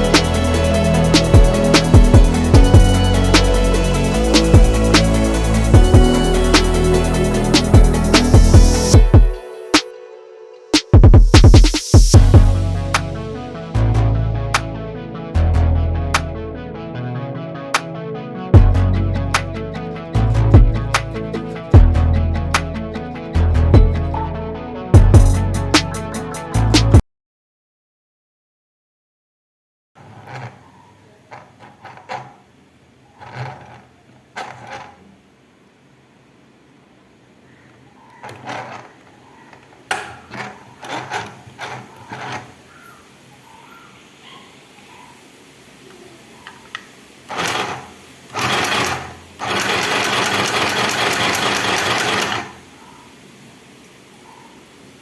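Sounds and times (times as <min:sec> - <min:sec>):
sewing machine stitching: 0:30.0 - 0:35.2, 0:38.2 - 0:42.7, 0:47.3 - 0:52.6.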